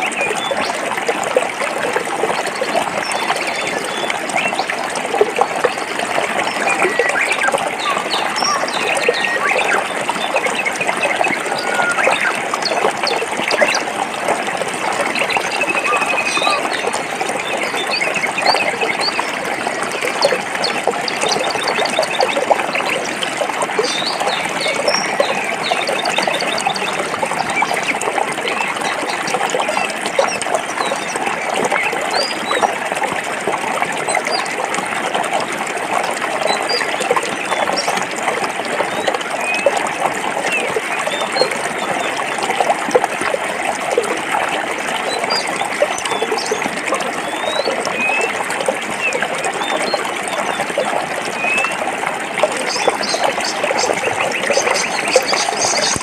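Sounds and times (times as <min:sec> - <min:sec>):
stream running over rocks: 0:00.0 - 0:56.0
birds chirping and trilling: 0:06.4 - 0:13.8, 0:15.0 - 0:19.3, 0:23.8 - 0:29.2, 0:52.6 - 0:56.0.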